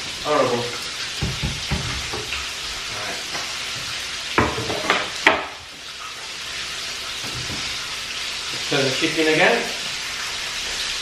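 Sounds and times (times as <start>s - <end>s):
food sizzling in oil: 0.0s - 11.0s
kitchenware knocking: 1.2s - 2.3s, 4.4s - 5.5s.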